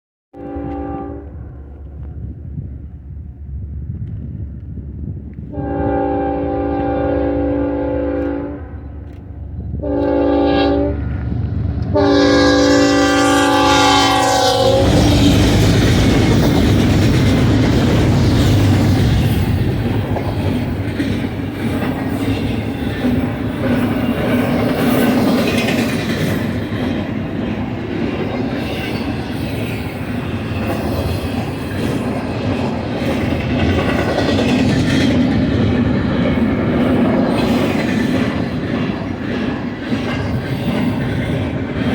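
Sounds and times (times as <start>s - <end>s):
locomotive air horn blasts: 0.4s - 1.4s, 5.5s - 8.8s, 9.8s - 11.1s, 11.9s - 15.4s
freight train rumbling past: 0.4s - 41.9s.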